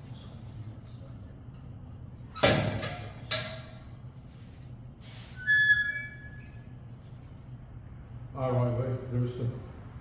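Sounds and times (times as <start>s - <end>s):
high squeaks: 5.3s - 7.2s.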